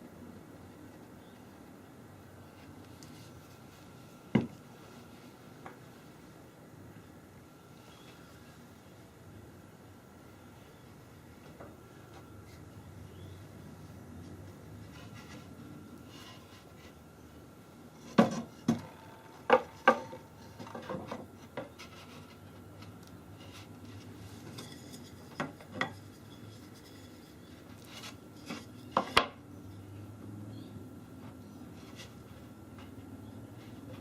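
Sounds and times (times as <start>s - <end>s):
wooden parts knocking: 18.2s - 21.7s.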